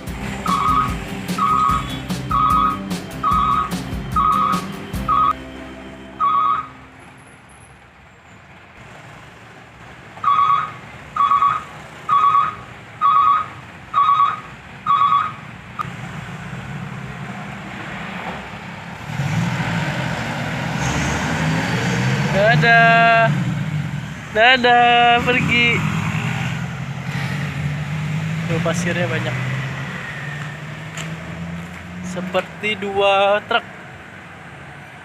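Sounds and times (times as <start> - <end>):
truck engine: 0.0 - 35.0
reversing alarm beeping: 0.4 - 7.4.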